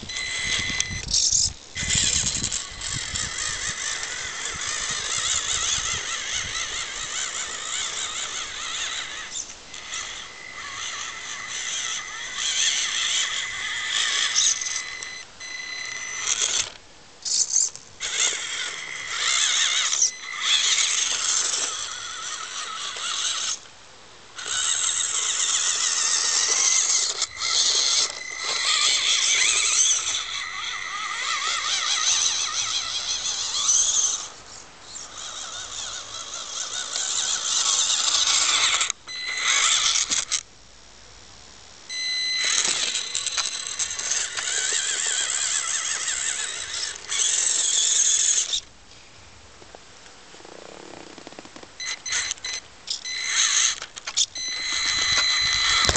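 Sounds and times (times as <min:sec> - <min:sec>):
small electric motor whining: 0:00.0 - 0:23.7, 0:24.3 - 0:40.5, 0:41.9 - 0:48.7, 0:51.8 - 0:55.9.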